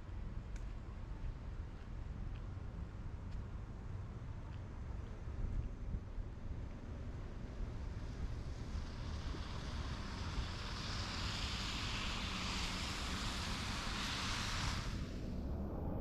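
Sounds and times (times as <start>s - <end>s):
rushing hiss: 8.4s - 15.2s.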